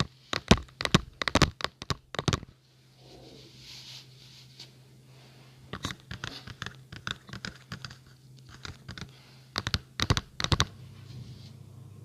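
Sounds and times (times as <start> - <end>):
tapping and scratching on microphone: 0.0 - 2.5, 5.7 - 10.7.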